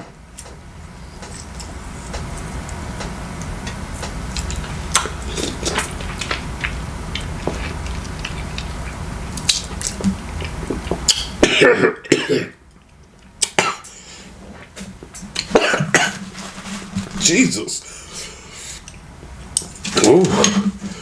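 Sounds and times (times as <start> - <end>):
low steady hum: 0.0 - 21.0
person coughing: 11.4 - 12.6, 13.6 - 13.9, 15.5 - 16.2
utensils clicking and tapping: 19.6 - 21.0.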